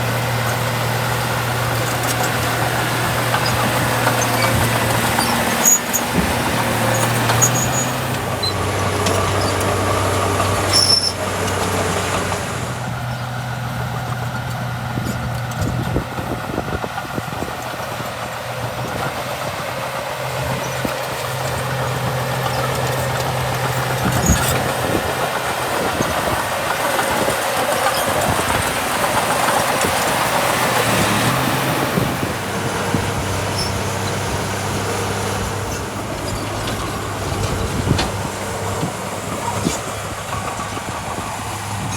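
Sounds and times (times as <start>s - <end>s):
bulldozer diesel engine working: 0.0s - 41.9s
machine squeaks and knocks: 1.5s - 12.4s, 20.5s - 32.3s.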